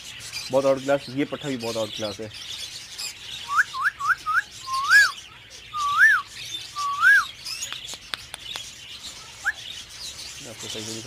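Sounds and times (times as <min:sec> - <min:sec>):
budgerigars whistling calls: 0:00.0 - 0:07.8
faint high chatter: 0:03.0 - 0:11.0.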